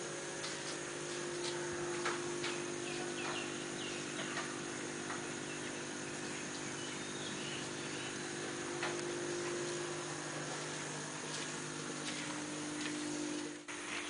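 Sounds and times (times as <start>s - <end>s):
steady low hum: 0.0s - 14.0s
birds chirping: 1.1s - 14.0s.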